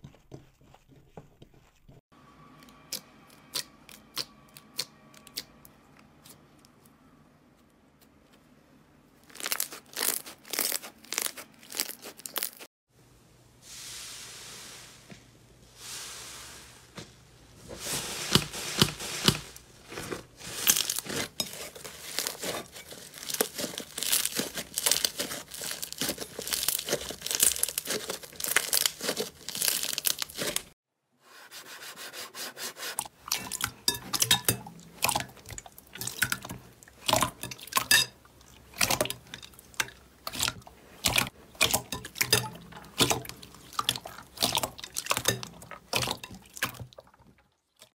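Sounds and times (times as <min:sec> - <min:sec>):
soft hissing: 0:13.5 - 0:19.7.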